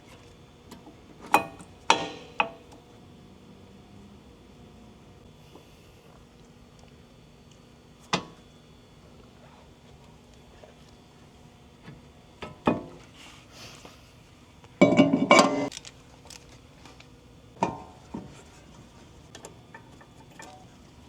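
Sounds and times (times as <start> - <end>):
metal tools clinking and knocking: 14.8 - 15.7.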